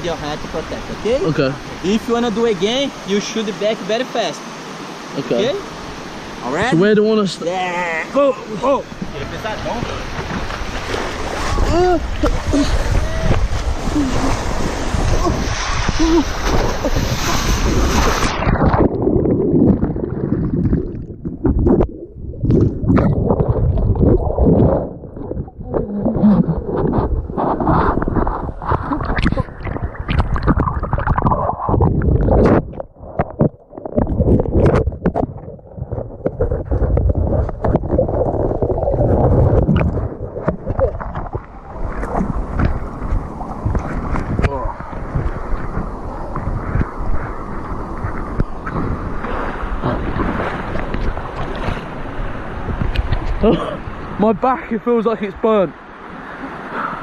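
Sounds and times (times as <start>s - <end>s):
water rushing over rocks: 0.0s - 57.0s
muffled splashes: 8.1s - 54.3s
wind on microphone: 8.9s - 54.2s.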